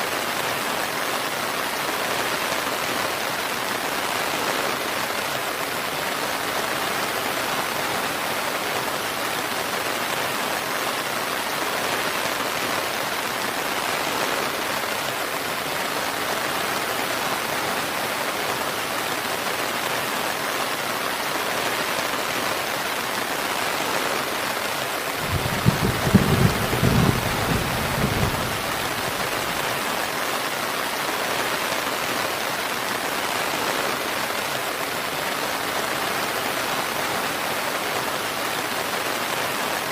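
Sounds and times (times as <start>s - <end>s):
rain falling: 0.0s - 39.9s
low rumble of thunder: 25.2s - 29.5s.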